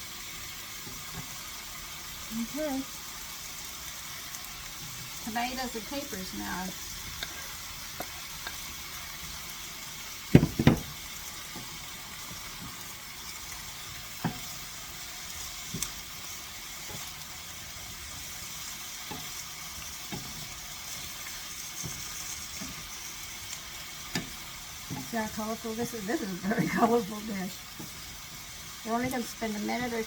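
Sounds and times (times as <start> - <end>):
vegetables sizzling in a frying pan: 0.0 - 30.0
knocks: 10.3 - 10.9.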